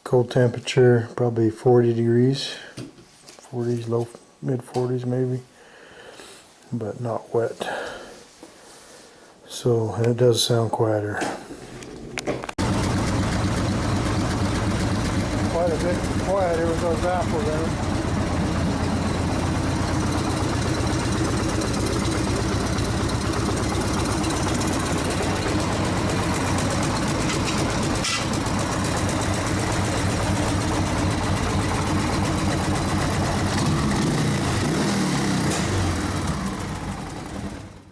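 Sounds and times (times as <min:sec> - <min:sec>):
car engine idling: 0:11.6 - 0:37.9.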